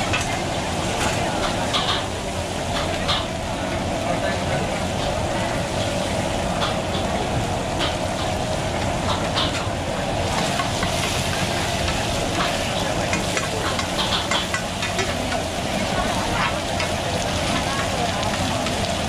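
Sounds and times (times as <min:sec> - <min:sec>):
food sizzling in oil: 0:04.9 - 0:19.0.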